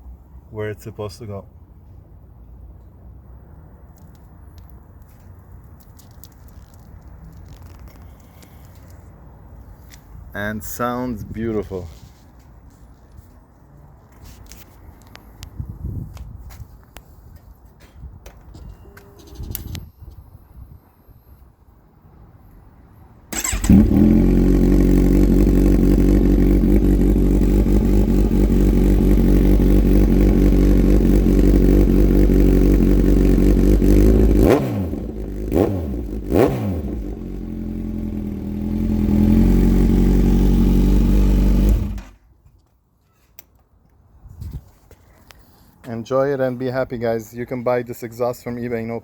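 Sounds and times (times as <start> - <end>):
motorcycle engine idling and revving: 23.3 - 42.2.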